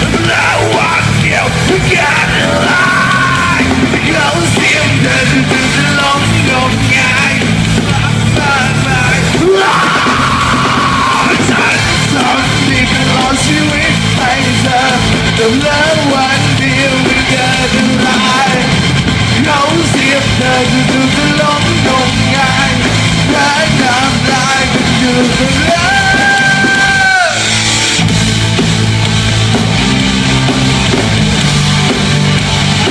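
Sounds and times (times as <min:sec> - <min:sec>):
live rock band playing: 0:00.0 - 0:32.9
people shouting: 0:00.3 - 0:03.8, 0:09.4 - 0:11.8, 0:25.8 - 0:27.6.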